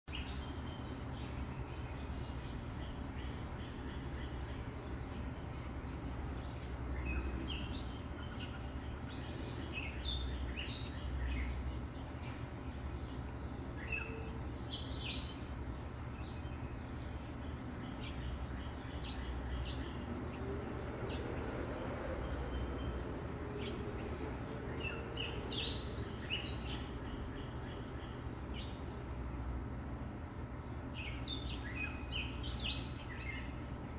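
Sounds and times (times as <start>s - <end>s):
small birds chirping: 0.0s - 33.9s.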